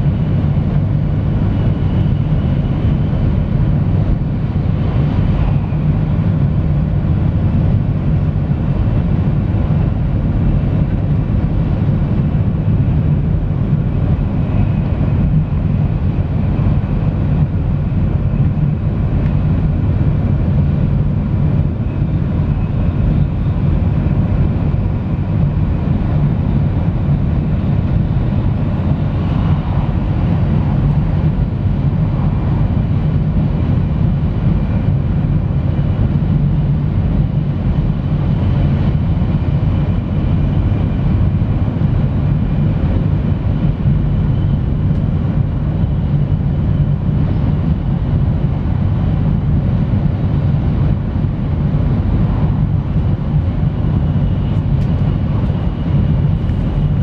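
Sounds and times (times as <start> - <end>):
train running at speed: 0.0 - 57.0
wheels rumbling on rails: 27.8 - 34.1.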